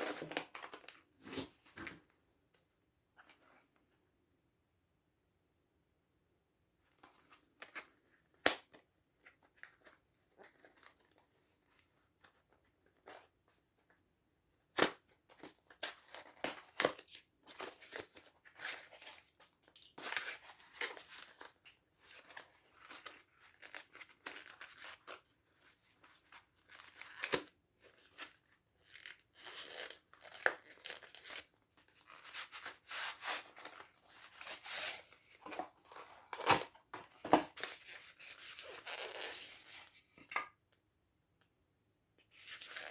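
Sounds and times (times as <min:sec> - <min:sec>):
packaging rustling and crinkling: 0:15.4 - 0:40.2.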